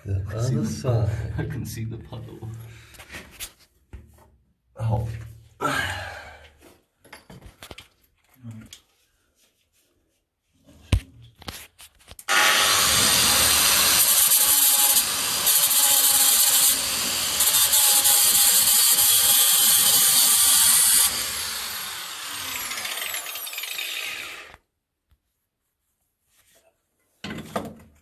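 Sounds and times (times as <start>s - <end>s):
angle grinder on steel: 12.3s - 24.6s
grinder winding down whine: 20.0s - 24.5s.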